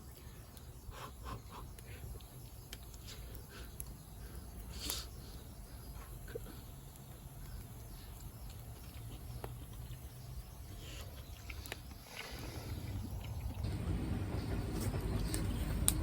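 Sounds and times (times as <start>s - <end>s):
low rumble: 12.6s - 16.0s.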